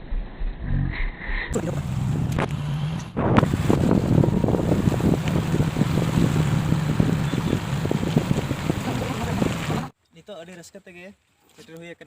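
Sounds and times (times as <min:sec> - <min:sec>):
motorcycle engine droning: 0:01.6 - 0:09.9
wind buffeting microphone: 0:01.6 - 0:09.9.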